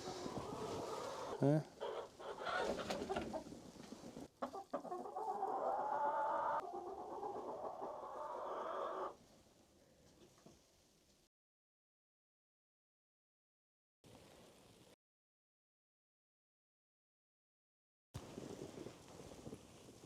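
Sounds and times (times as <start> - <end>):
hens clucking: 0.0 - 9.2.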